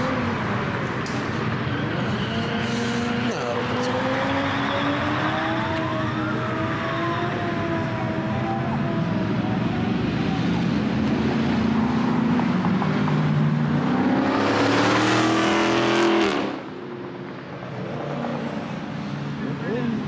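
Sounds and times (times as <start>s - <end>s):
car accelerating hard: 1.8s - 9.1s, 9.9s - 16.7s.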